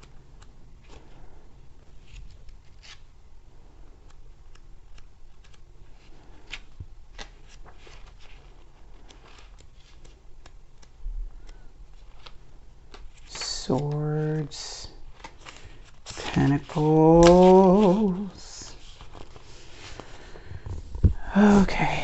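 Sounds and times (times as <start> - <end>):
pages being turned: 0.0 - 3.1, 4.0 - 22.0.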